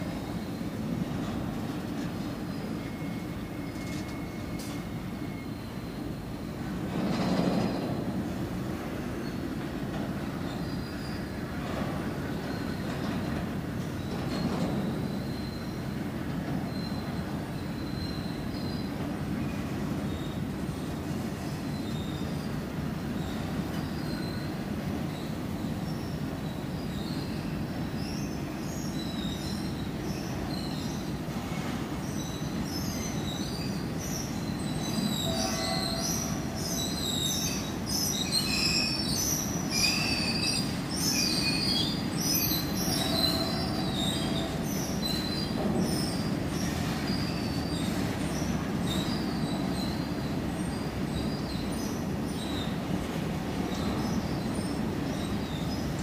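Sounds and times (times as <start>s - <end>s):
freight wagons rumbling on rails: 0.0s - 56.0s
high-pitched wheel squeals: 34.8s - 37.4s.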